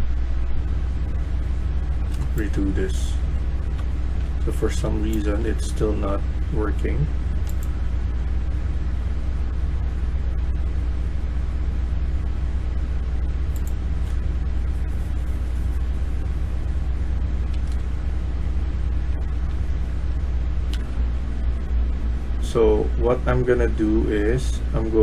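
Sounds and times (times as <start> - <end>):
low hum and rumble: 0.0 - 25.0.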